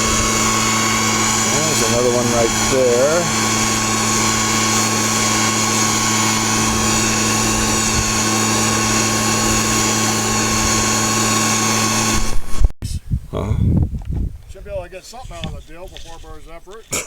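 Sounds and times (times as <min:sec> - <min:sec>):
small gasoline engine humming: 0:00.0 - 0:12.6.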